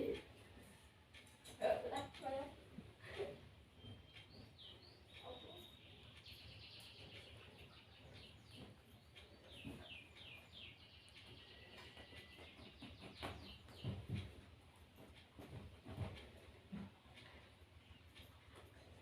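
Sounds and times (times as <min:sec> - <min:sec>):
faint bird chirping: 0:00.0 - 0:14.6.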